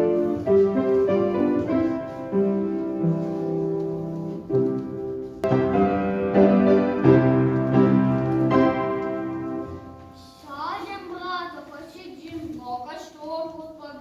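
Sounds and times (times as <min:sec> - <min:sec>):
piano chords and melody: 0:00.0 - 0:10.3.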